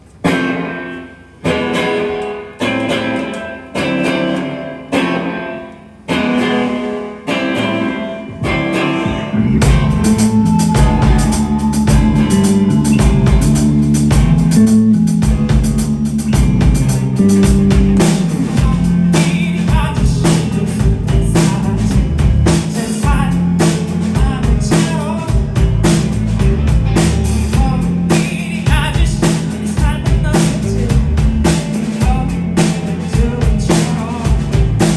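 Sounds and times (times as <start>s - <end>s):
drums and bass: 0.0s - 34.9s
ringing guitar chords: 0.2s - 21.4s
live band playing: 0.3s - 34.9s.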